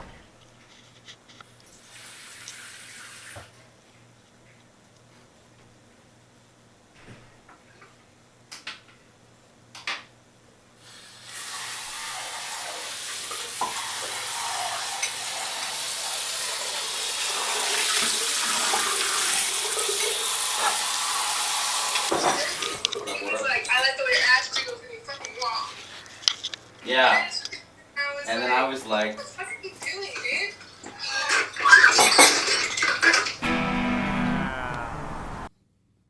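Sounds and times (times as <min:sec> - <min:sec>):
rain hissing: 0:01.7 - 0:03.4, 0:10.8 - 0:22.9, 0:33.3 - 0:35.5.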